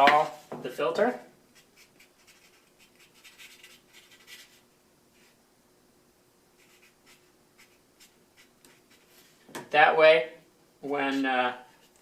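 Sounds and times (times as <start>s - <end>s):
marker scratching on filter: 1.6s - 4.6s, 6.6s - 9.1s.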